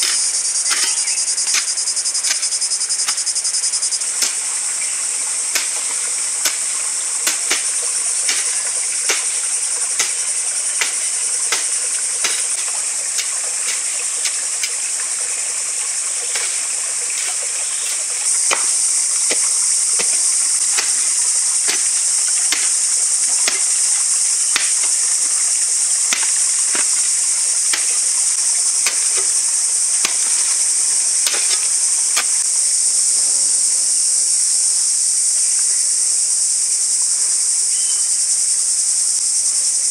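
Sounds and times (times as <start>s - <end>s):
high-pitched insect chorus: 0.0s - 39.9s
sharp knocks: 18.4s - 22.8s, 23.4s - 25.4s, 26.1s - 27.1s.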